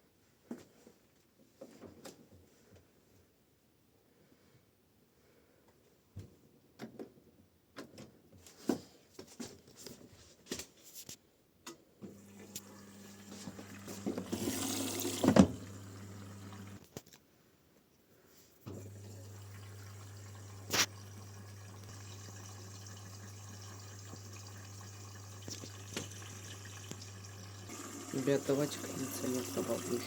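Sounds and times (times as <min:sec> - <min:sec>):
water inlet valve humming: 0:12.1 - 0:16.8, 0:18.7 - 0:30.0
water rushing in: 0:12.2 - 0:16.8, 0:18.8 - 0:30.0.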